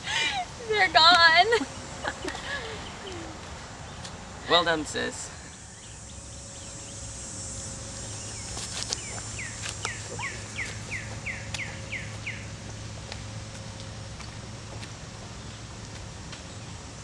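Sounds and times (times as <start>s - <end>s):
steady low hum: 0.0s - 17.0s
songbird whistling: 8.0s - 12.5s.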